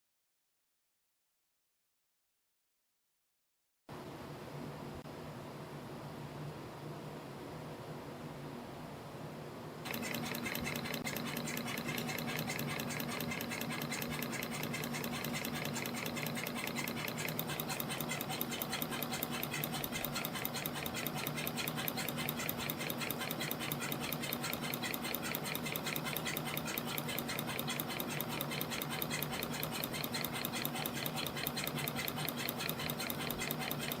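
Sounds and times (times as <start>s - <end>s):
steady motor hum: 9.8s - 34.0s
fast even ticking: 9.9s - 34.0s.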